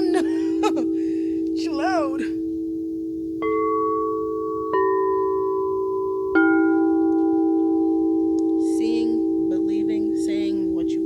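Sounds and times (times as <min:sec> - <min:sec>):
singing bowl ringing: 0:02.4 - 0:09.6.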